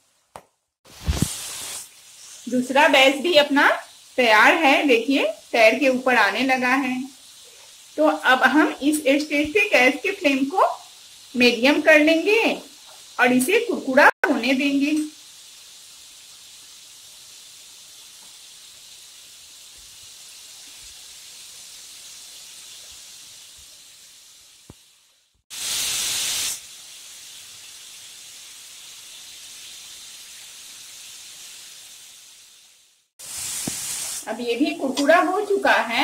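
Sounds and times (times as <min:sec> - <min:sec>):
lentils sizzling in hot oil: 0:00.0 - 0:36.0
loud rush of hissing: 0:00.9 - 0:04.3, 0:25.5 - 0:35.6.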